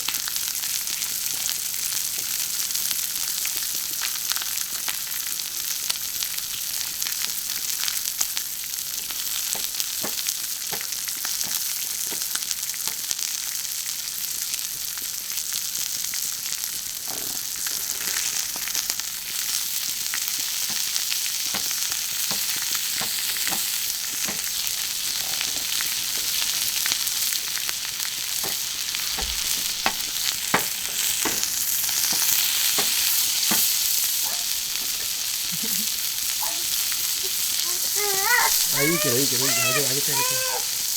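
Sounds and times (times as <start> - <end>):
food sizzling on griddle: 0.0 - 40.9.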